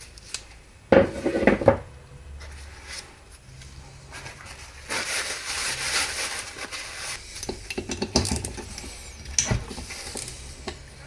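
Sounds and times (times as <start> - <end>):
metal scraping and rubbing: 2.5 - 11.0.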